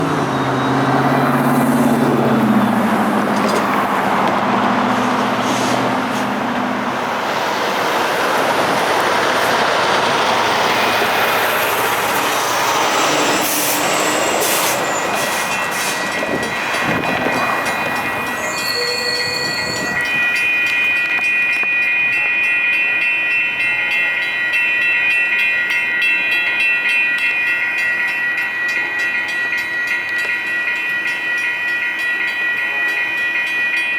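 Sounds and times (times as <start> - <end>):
freight train rolling: 0.0 - 33.9
electronic crossing bell ringing: 9.1 - 33.9.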